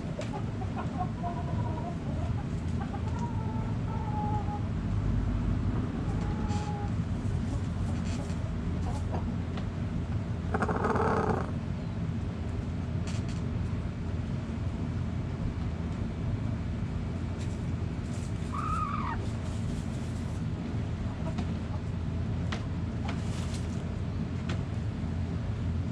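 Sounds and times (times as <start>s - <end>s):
chickens calling: 0.0s - 4.7s, 6.0s - 9.3s, 10.4s - 11.6s, 18.4s - 20.0s
steady low rumble: 0.0s - 25.9s
hen buzzy call: 10.5s - 11.6s, 18.5s - 19.2s.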